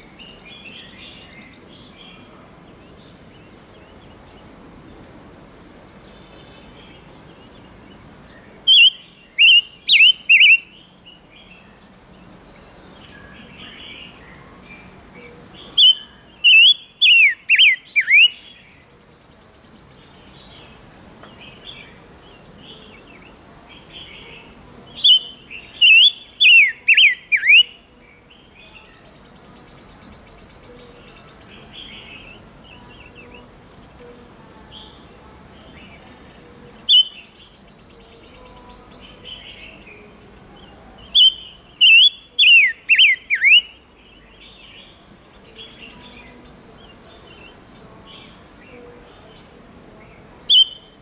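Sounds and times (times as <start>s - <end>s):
soft bird chatter: 0.0s - 51.0s
bird whistling downward notes: 41.2s - 43.7s, 50.5s - 50.9s.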